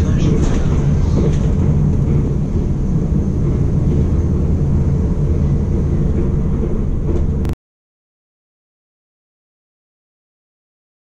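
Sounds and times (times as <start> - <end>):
electric train rumbling inside cabin: 0.0 - 7.6
passing train rush: 0.0 - 7.6.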